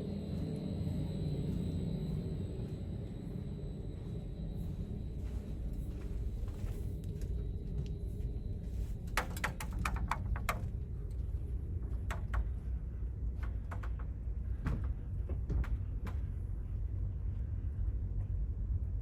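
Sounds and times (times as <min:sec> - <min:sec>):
low rumble: 0:00.0 - 0:09.3, 0:10.1 - 0:19.0
sharp clicks and knocks: 0:09.1 - 0:10.8.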